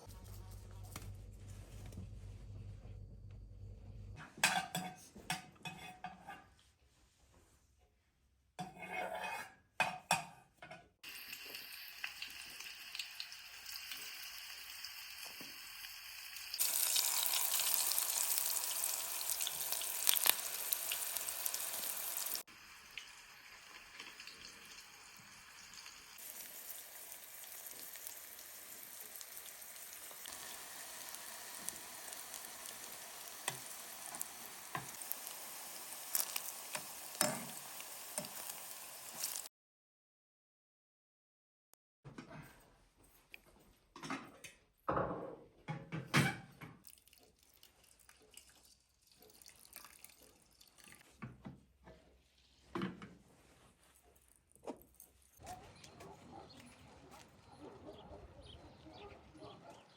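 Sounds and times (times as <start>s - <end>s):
food sizzling in a pan: 11.0s - 39.5s.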